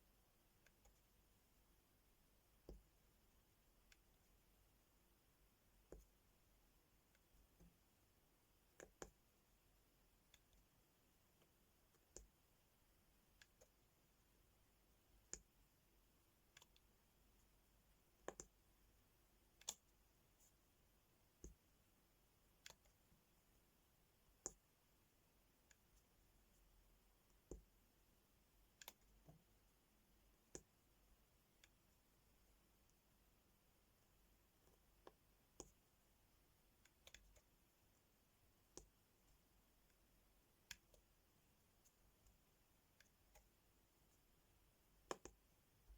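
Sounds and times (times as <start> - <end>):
pen clicks and taps: 5.9 - 6.1, 8.7 - 9.2, 18.2 - 18.6, 45.0 - 45.9.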